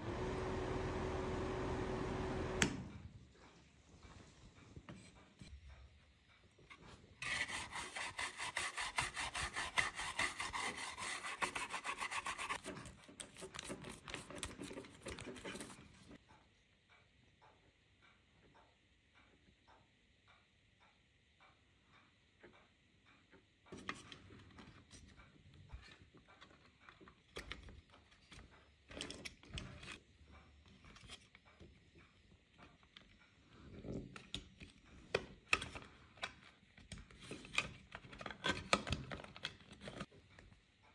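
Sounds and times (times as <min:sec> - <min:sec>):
rapid rasping strokes by hand: 0:07.2 - 0:12.7.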